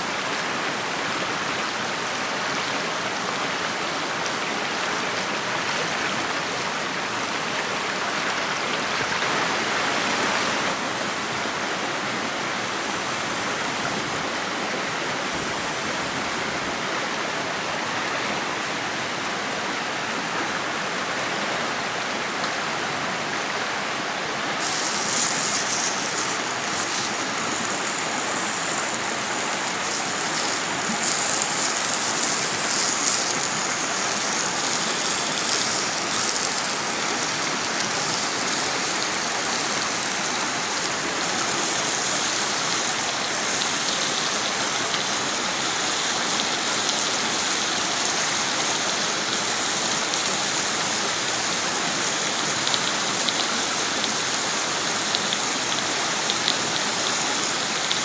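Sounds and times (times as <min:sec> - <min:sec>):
rushing water noise: 0:00.0 - 0:58.0
crackling hiss: 0:09.2 - 0:16.7, 0:24.5 - 0:58.0.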